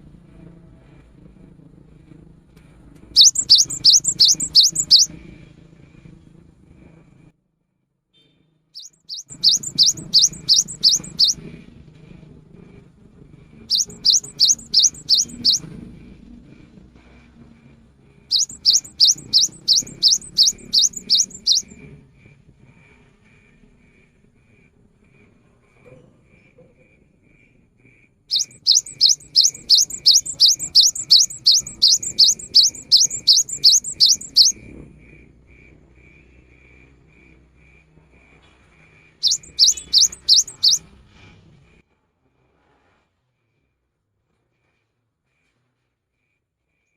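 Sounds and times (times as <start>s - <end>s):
bird singing rising notes: 3.2s - 5.1s, 8.8s - 11.4s, 13.7s - 15.7s, 18.3s - 21.8s, 28.3s - 34.6s, 39.2s - 40.8s.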